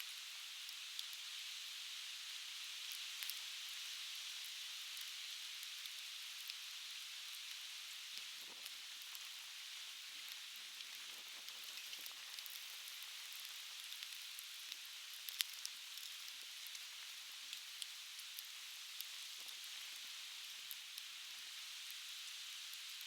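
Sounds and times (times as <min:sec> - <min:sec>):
fire crackling and popping: 0:10.2 - 0:23.0.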